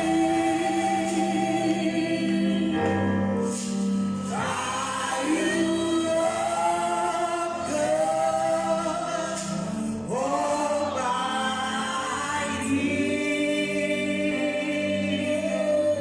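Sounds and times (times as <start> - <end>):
choir singing gospel music: 0.0 - 16.0.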